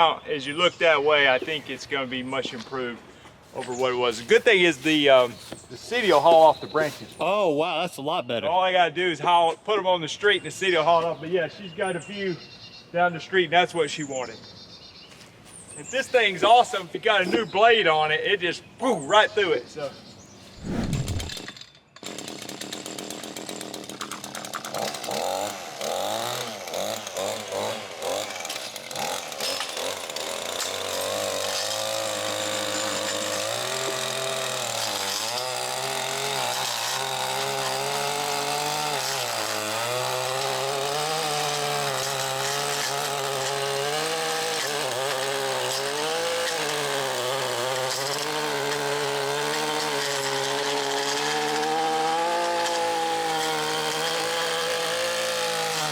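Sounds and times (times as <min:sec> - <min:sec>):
cutting tool motor running: 0:20.6 - 0:22.4, 0:23.2 - 0:55.9.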